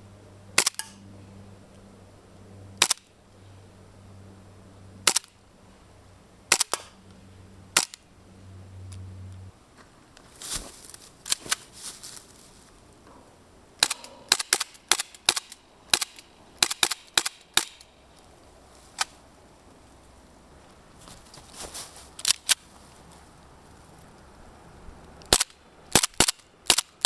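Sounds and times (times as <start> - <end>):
airsoft pistol shots: 0.6 - 1.0, 5.1 - 5.3, 6.5 - 7.0, 7.8 - 8.0, 13.8 - 17.8.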